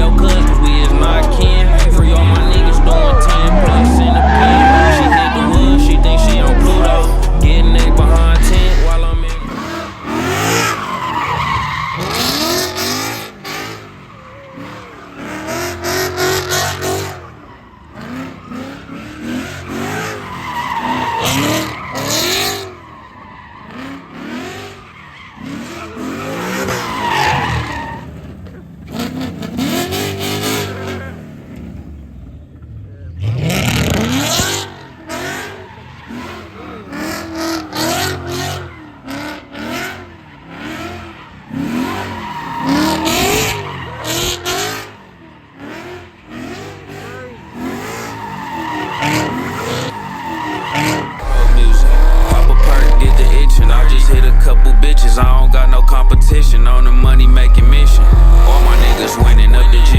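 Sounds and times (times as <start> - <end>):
people shouting: 0.0 - 10.8, 48.6 - 59.9
tyres screeching: 0.0 - 31.0, 33.6 - 46.0, 46.7 - 59.9
car engines revving: 0.0 - 59.9.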